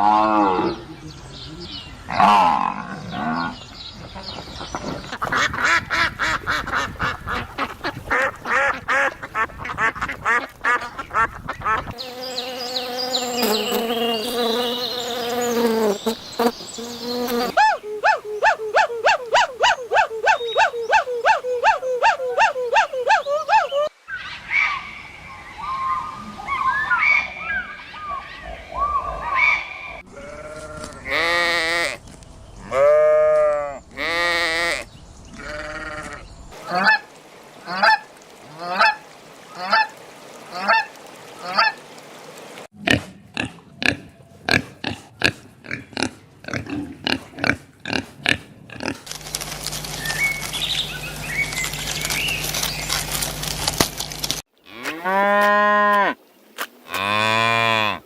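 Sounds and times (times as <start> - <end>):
cow mooing: 54.7 - 56.2.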